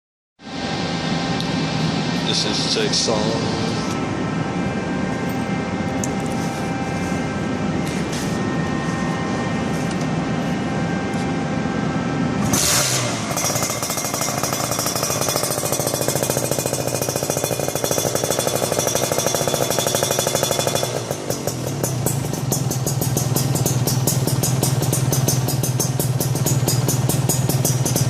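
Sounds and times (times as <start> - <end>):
two-stroke motorcycle engine: 12.4 - 28.0.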